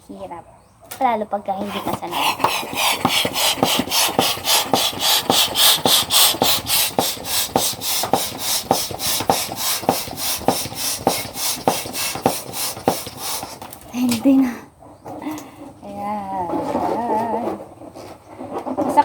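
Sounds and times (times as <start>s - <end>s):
balloon pump puffing air: 1.6s - 14.1s
pump clicking: 1.7s - 13.9s.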